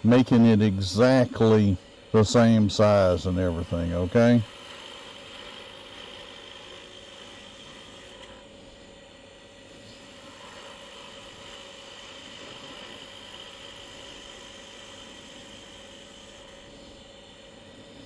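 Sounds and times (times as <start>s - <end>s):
wood lathe humming: 0.0s - 18.0s.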